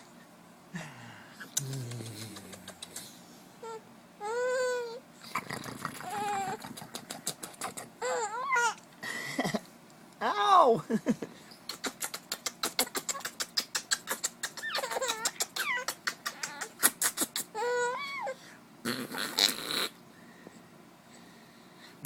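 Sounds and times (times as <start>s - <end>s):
baby giggling: 5.3s - 8.8s, 11.8s - 18.2s
baby squealing: 8.0s - 8.8s, 14.6s - 16.8s.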